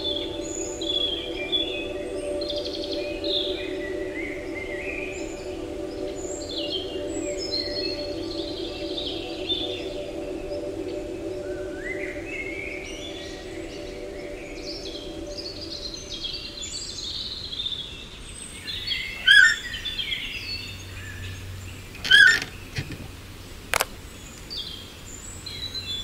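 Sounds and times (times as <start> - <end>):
low steady hum: 0.0 - 17.7
sharp click: 23.7 - 24.0.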